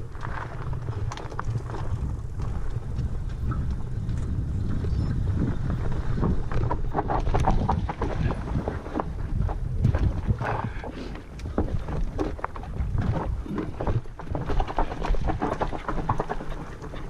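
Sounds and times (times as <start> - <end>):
bike rattling on rough ground: 0.0 - 17.0
wind rumbling on microphone: 0.0 - 17.0.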